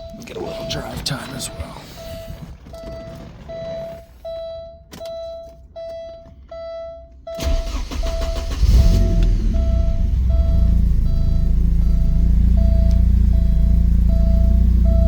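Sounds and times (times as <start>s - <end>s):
car engine cranking and idling: 0.0s - 15.0s
car warning chime: 0.0s - 15.0s.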